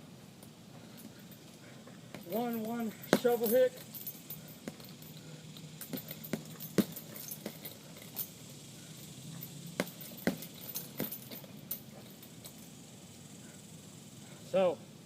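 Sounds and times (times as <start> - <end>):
gloves punching heavy bag: 2.1 - 3.8, 4.5 - 4.9, 5.8 - 8.1, 9.8 - 11.5.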